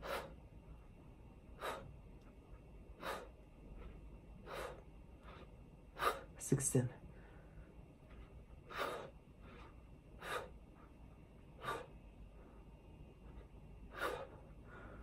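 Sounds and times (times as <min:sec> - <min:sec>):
man breathing hard: 0:00.0 - 0:00.4, 0:01.5 - 0:02.0, 0:02.9 - 0:06.4, 0:07.0 - 0:07.8, 0:08.6 - 0:10.9, 0:11.5 - 0:12.7, 0:13.4 - 0:15.0.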